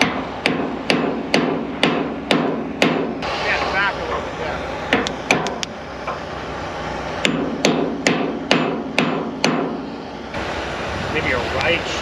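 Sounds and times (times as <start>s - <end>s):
hammer blows: 7.2s - 9.9s.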